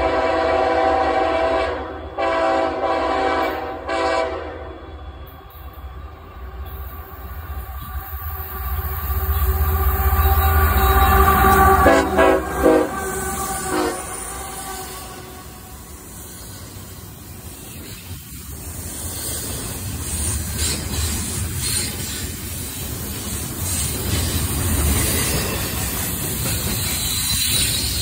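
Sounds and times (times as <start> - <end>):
train horn blast: 0.0 - 5.1, 9.1 - 16.0
freight train rumbling past: 0.0 - 28.0
wheels clicking over rail joints: 16.5 - 28.0.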